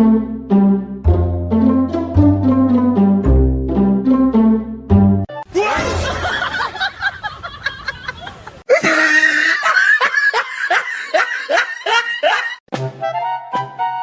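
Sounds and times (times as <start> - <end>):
people laughing: 5.7 - 12.6.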